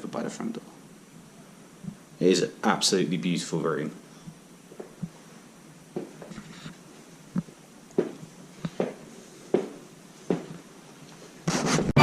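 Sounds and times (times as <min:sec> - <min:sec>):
footsteps across a floor: 0:04.3 - 0:12.0.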